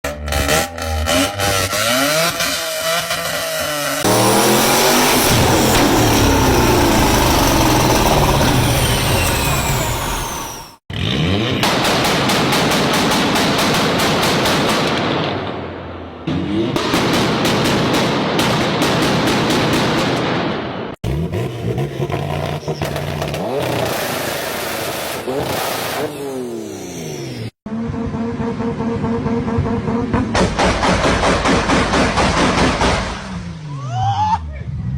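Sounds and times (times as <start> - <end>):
car accelerating: 0.0 - 11.8, 21.0 - 30.6
car engines revving: 0.0 - 12.1, 21.0 - 33.8
car engine running steadily: 4.0 - 10.8.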